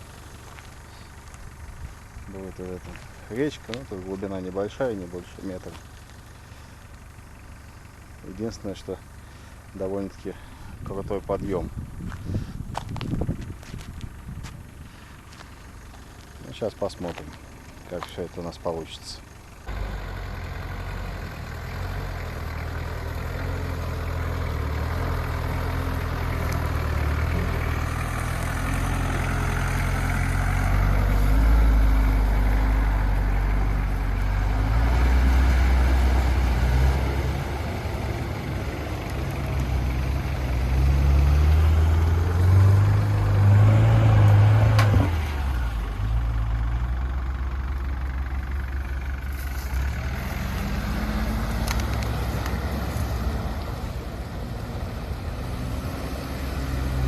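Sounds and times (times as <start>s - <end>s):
off-road vehicle engine revving: 19.6s - 57.0s.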